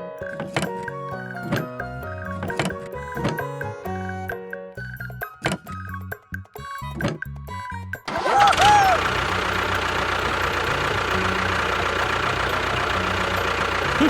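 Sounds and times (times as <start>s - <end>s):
background music: 0.0s - 9.7s
motor running: 8.1s - 14.0s.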